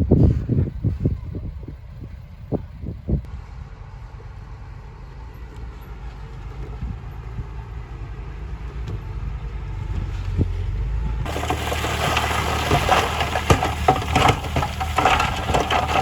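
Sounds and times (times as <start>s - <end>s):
heavy machine engine rumbling: 11.2s - 16.0s.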